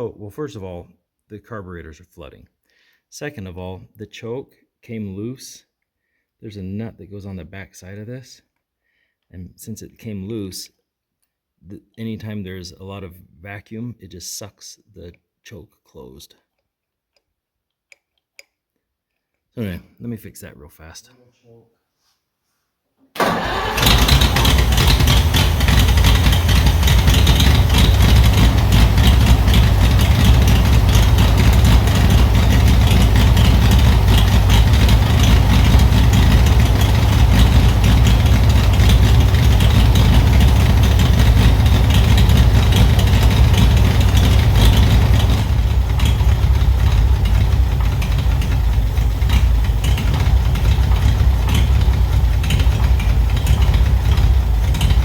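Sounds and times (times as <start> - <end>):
tractor engine running: 23.2 - 55.0.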